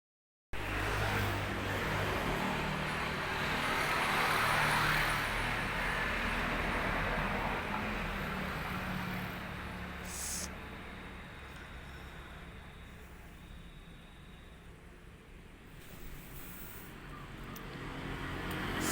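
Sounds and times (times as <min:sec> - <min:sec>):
vehicle passing: 0:00.6 - 0:11.2, 0:15.9 - 0:18.9.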